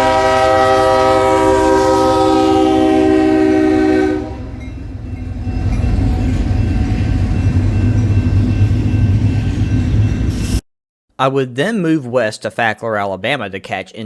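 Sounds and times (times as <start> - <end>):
locomotive air horn chord: 0.0 - 4.6
diesel locomotives rumbling past: 0.0 - 10.6.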